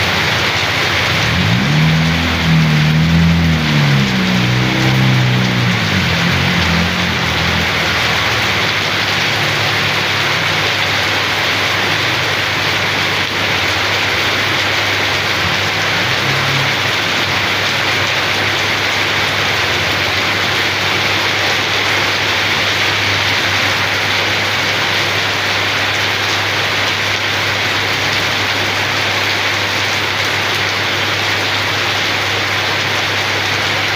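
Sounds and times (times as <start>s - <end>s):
steady rain: 0.0s - 33.9s.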